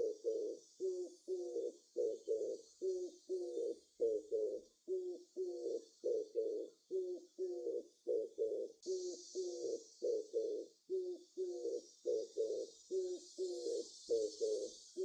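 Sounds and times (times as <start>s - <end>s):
dove cooing: 0.0s - 15.0s
steady high hiss: 8.8s - 10.1s.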